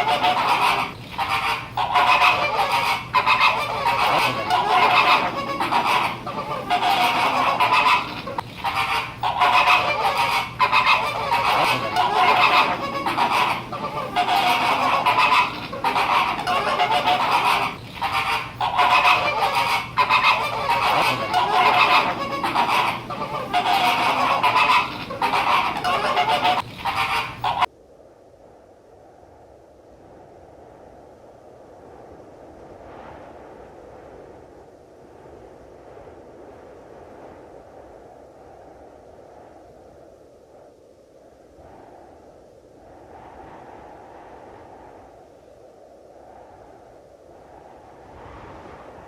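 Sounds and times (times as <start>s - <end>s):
flamingos honking: 0.0s - 27.7s.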